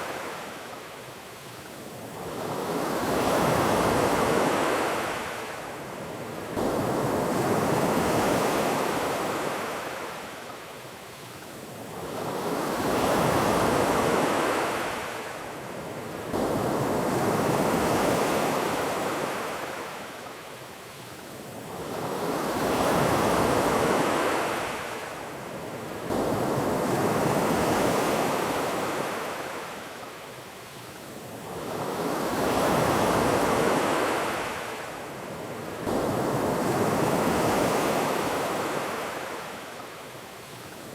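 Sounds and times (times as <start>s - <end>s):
ocean waves washing onto beach: 0.0s - 40.9s.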